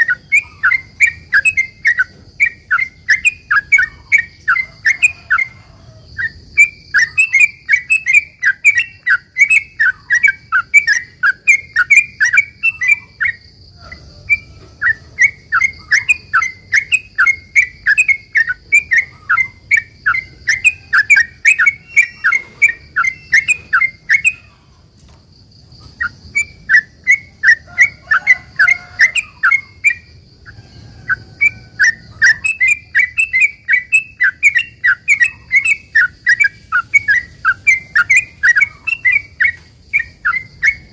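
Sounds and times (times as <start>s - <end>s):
faint steady high tone: 0.0s - 24.9s
bird chirping song: 0.0s - 40.9s.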